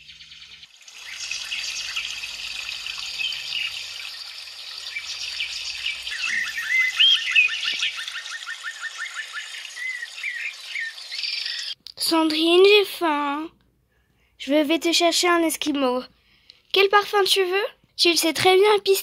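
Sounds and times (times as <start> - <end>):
birds chirping and singing: 0.0 - 11.8.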